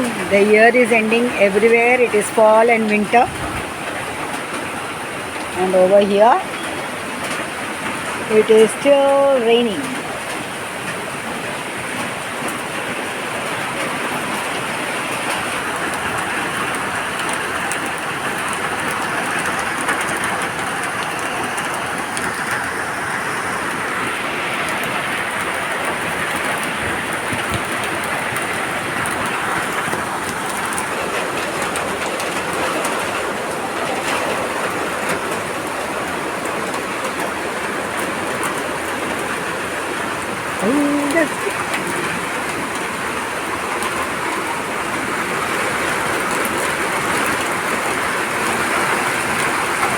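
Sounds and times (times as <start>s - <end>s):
heavy rain hissing: 0.0s - 49.9s
raindrops ticking: 0.0s - 49.9s.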